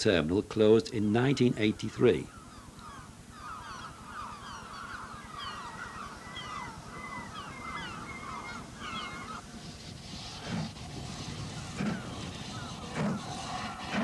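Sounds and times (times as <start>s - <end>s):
flock of birds calling: 1.8s - 9.5s, 11.3s - 14.0s.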